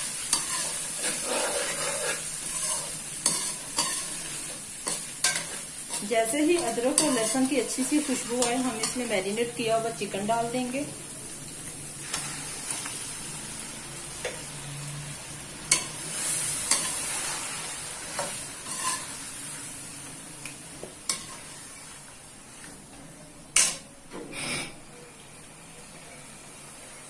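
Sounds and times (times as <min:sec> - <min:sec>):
chicken sizzling in a pan: 0:00.0 - 0:23.8, 0:25.0 - 0:27.0
spoon scraping and knocking pan: 0:00.1 - 0:09.2, 0:15.7 - 0:17.4, 0:18.1 - 0:19.2.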